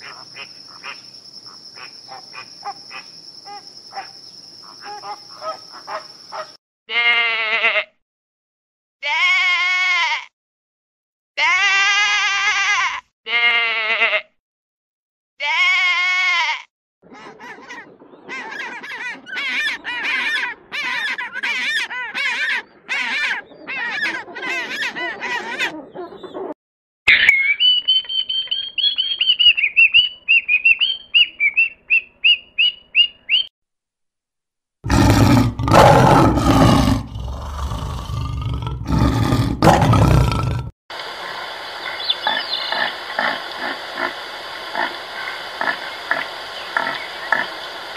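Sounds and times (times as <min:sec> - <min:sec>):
sheep bleating: 0:06.9 - 0:07.9, 0:09.0 - 0:10.3, 0:11.4 - 0:14.3, 0:15.4 - 0:16.7
lion roaring: 0:34.9 - 0:40.7.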